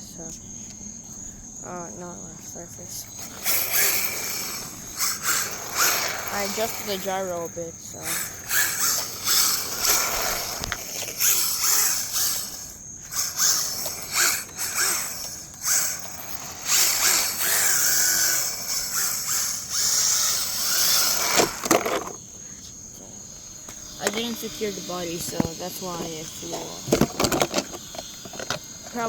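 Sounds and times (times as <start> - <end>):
electric motor whining: 0.2 - 29.0
tyres sliding on smooth ground: 3.2 - 29.0
plastic body shell clattering: 26.5 - 28.7.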